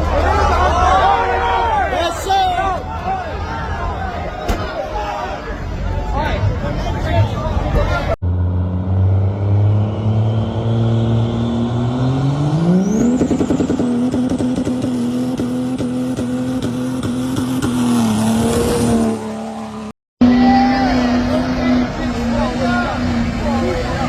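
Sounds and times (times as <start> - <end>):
diesel truck engine revving: 8.2 - 24.0.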